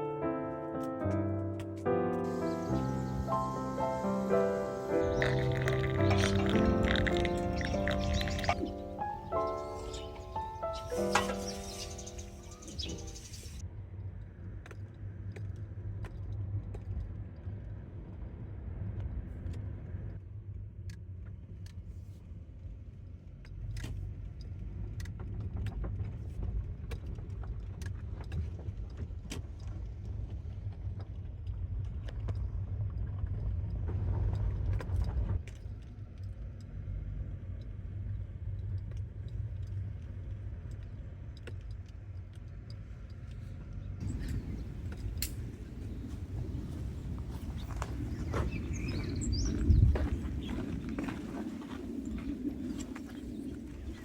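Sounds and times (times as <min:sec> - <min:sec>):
car engine and road noise: 0:32.6 - 0:53.7.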